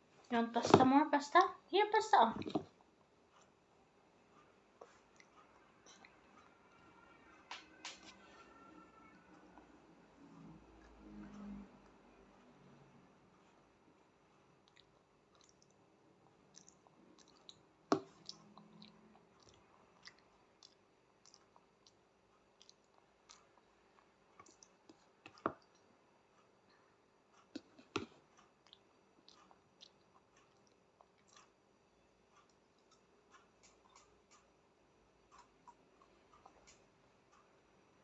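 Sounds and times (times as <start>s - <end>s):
child eating mouth noises: 16.5s - 22.0s.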